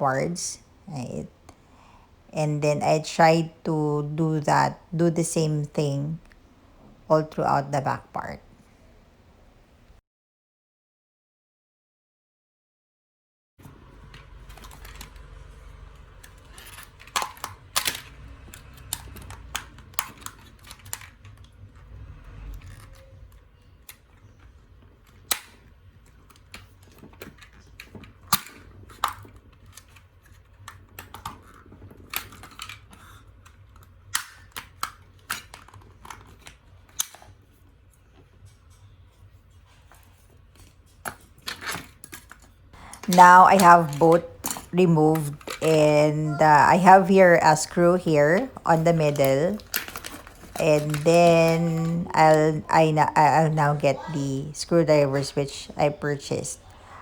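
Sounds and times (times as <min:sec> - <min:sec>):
plastic clicks and snaps: 0:16.2 - 0:21.6, 0:22.4 - 0:37.4
low steady hum: 0:42.2 - 0:57.0.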